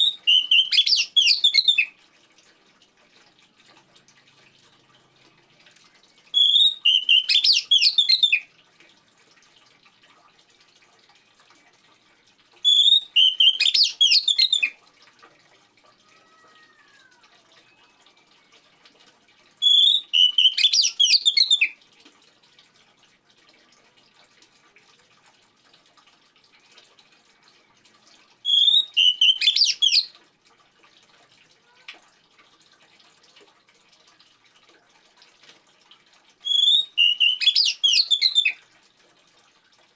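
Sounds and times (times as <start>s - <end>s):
bird song rapid high notes: 0.0s - 1.9s, 6.4s - 8.4s, 12.7s - 14.7s, 19.6s - 21.7s, 28.5s - 30.1s, 36.5s - 38.6s
water trickling: 0.0s - 39.9s.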